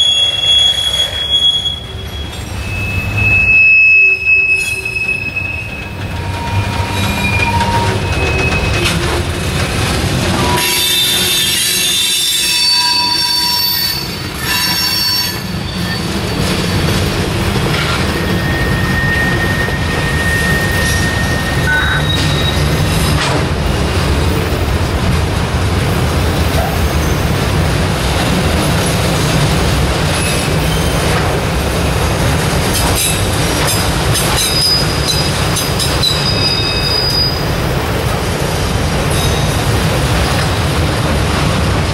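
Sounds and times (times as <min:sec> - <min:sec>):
high wheel squeals: 0:00.0 - 0:09.3, 0:10.4 - 0:23.1, 0:34.2 - 0:37.5
train wheels rumbling on rail: 0:00.0 - 0:41.9.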